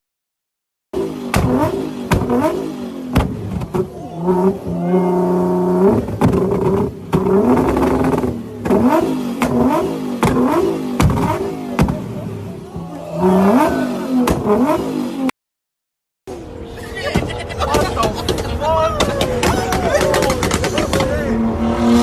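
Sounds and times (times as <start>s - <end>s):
car engine revving: 1.0s - 15.3s, 19.3s - 22.0s
exhaust pops and bangs: 1.2s - 4.0s, 5.9s - 12.3s, 14.2s - 14.8s, 17.2s - 21.3s.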